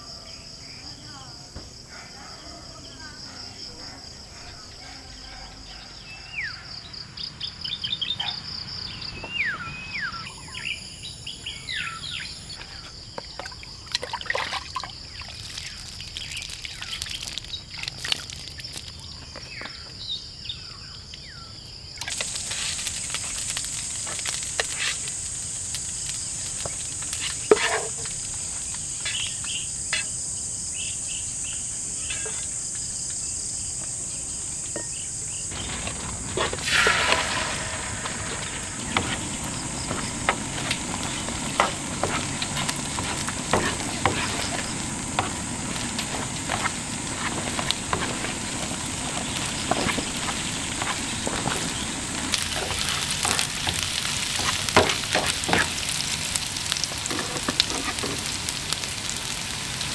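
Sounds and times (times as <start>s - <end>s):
high insect drone: 0.0s - 59.9s
insects chorus: 0.0s - 59.9s
birds calling: 3.4s - 59.9s.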